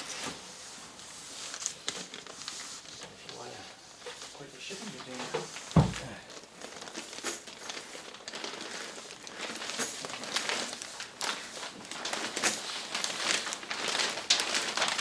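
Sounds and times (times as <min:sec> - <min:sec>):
plastic sheet crinkling: 0:00.0 - 0:15.0.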